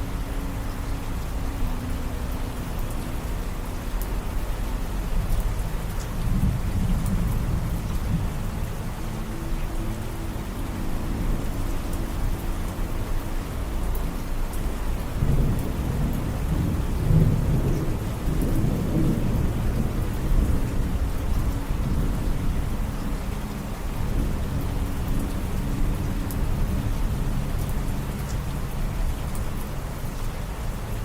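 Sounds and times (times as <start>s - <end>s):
rain drop ticks: 0.0s - 31.0s
steady rain falling: 0.0s - 31.0s
low rumble of thunder: 5.1s - 9.4s, 15.1s - 30.2s.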